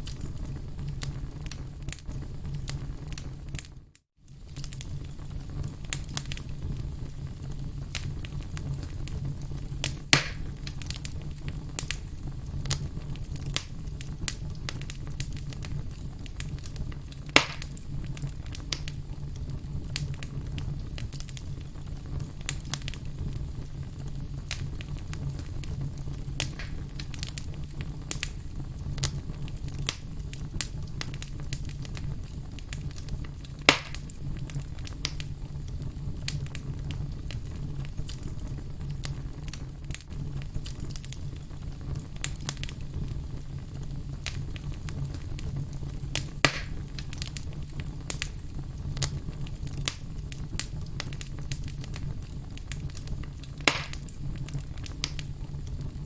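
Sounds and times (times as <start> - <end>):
firewood crackling and popping: 0.0 - 56.0
loud wood snaps: 9.8 - 10.5, 17.4 - 17.8, 26.4 - 26.8, 33.7 - 34.1, 46.4 - 47.3, 53.6 - 54.1.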